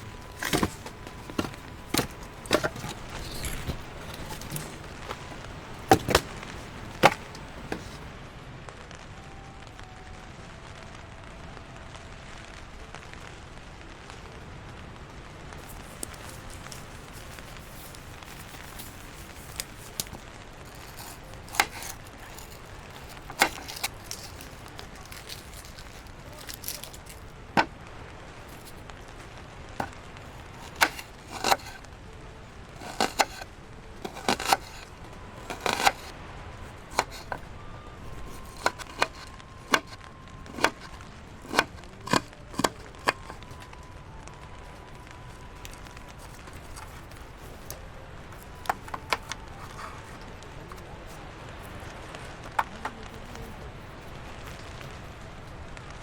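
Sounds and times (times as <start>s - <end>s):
sharp irregular knocks: 0.0s - 8.0s, 15.8s - 27.2s, 29.8s - 31.8s, 32.8s - 33.4s, 34.0s - 36.1s, 36.9s - 37.4s, 38.1s - 43.5s.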